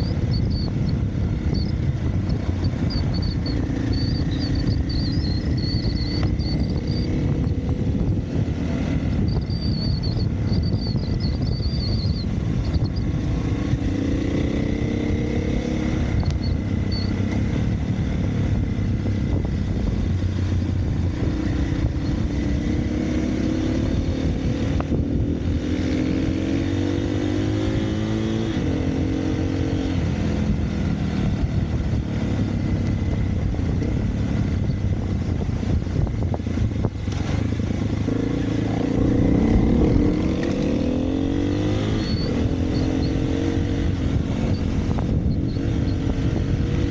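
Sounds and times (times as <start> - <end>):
dirt bike engine revving: 37.2 - 46.9.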